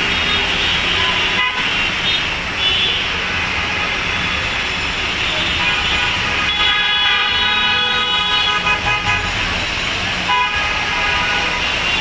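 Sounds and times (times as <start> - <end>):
street traffic: 0.0 - 12.0
vehicle horn blasts: 5.3 - 9.3.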